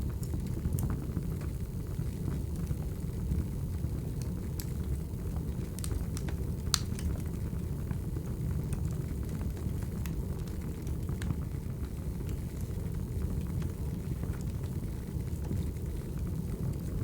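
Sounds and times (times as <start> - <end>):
wood fire crackling: 0.0 - 17.0
fire pops and snaps: 4.0 - 17.0.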